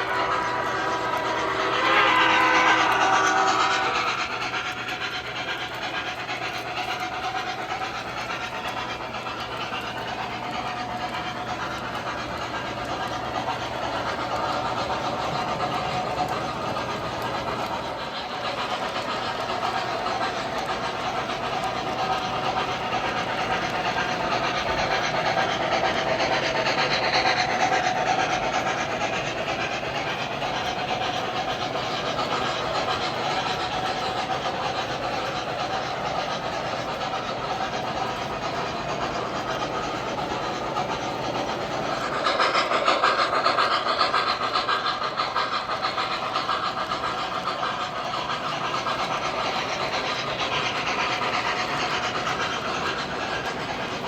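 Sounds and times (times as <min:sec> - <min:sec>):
model train motor hum: 0:00.0 - 0:54.0.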